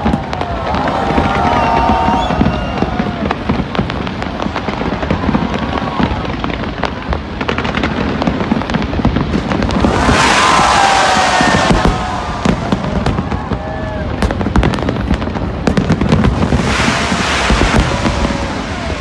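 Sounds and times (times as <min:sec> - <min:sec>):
fireworks booming and crackling: 0:00.0 - 0:19.0
loud rushing noise: 0:09.6 - 0:12.8, 0:16.4 - 0:19.0.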